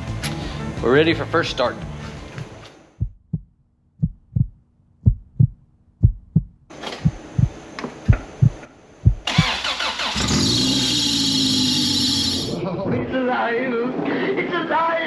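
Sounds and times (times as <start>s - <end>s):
paired heartbeat-like thumps: 1.9s - 9.6s
engine starter cranking: 9.2s - 12.5s.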